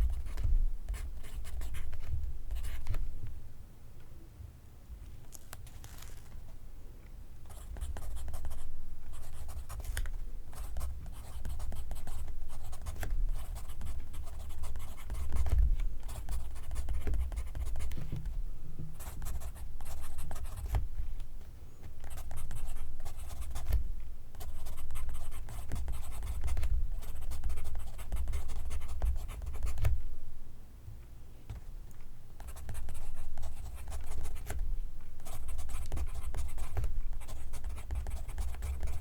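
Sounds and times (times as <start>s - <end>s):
pencil scratching on paper: 10.6s - 18.1s, 19.0s - 20.8s, 24.4s - 29.8s, 35.2s - 39.0s.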